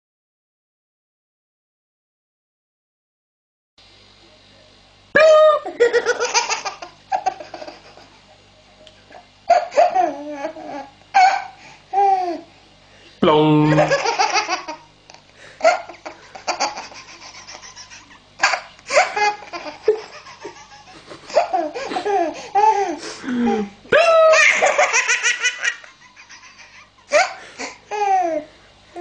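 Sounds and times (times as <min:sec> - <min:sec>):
baby laughing: 0:05.2 - 0:08.2, 0:09.5 - 0:12.5, 0:13.7 - 0:28.5.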